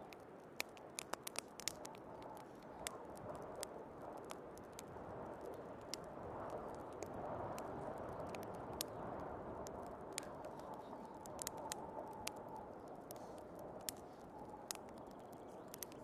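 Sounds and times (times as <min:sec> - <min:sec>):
burning wood popping: 0:00.0 - 0:16.0
crackling fireplace: 0:00.0 - 0:16.0
whistling wind: 0:00.2 - 0:16.0
rushing snowstorm wind: 0:01.0 - 0:15.0.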